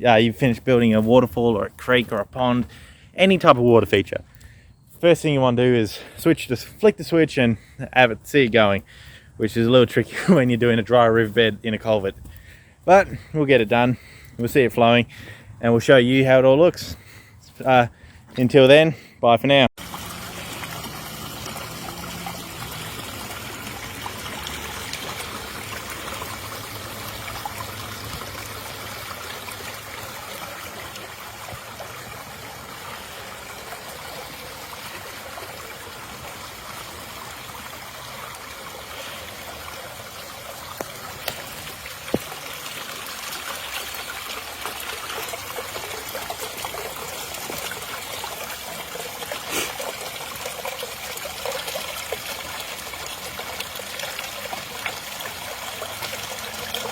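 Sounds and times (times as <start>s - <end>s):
water trickling over rocks: 0.0s - 5.1s, 5.9s - 18.8s, 19.8s - 56.9s.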